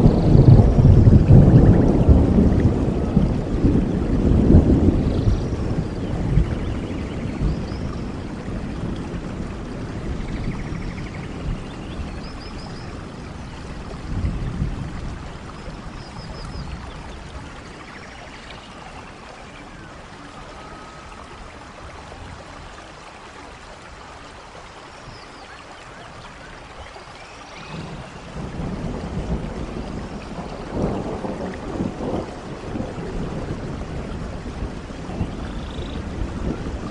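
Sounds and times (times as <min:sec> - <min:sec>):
thunder rolling: 0:00.0 - 0:12.2, 0:27.6 - 0:36.9
steady rain: 0:00.0 - 0:36.9.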